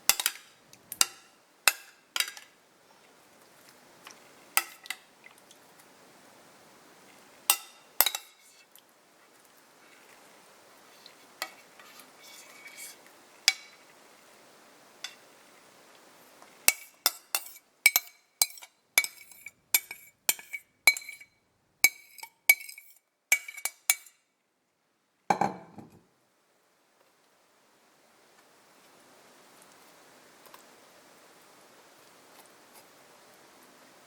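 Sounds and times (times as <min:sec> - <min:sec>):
spoon clinking in cup: 0:00.1 - 0:02.4, 0:04.6 - 0:05.0, 0:07.5 - 0:08.4, 0:16.7 - 0:24.1, 0:25.3 - 0:26.0
dull knock: 0:25.3 - 0:26.0.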